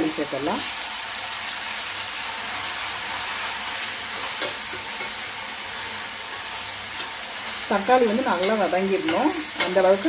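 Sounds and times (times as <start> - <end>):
vegetables sizzling in hot oil: 0.0 - 10.0
spoon stirring in pan: 3.7 - 10.0.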